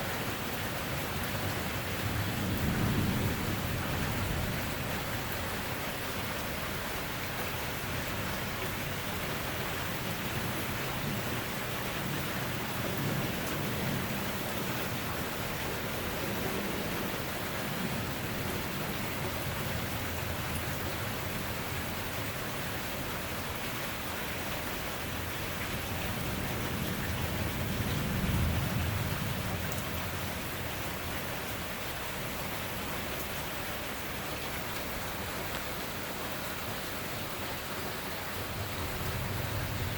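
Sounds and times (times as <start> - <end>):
steady rain falling: 0.0 - 39.9
thunder rumbling: 1.8 - 5.1, 25.8 - 30.6, 38.6 - 39.9.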